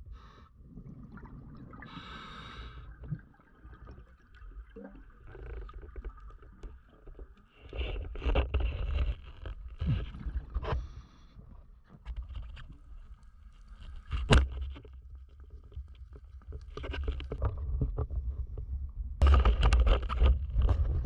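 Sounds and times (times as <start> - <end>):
bubbles rumbling and gurgling: 0.0 - 21.0
regulator hissing inhale: 1.9 - 2.9.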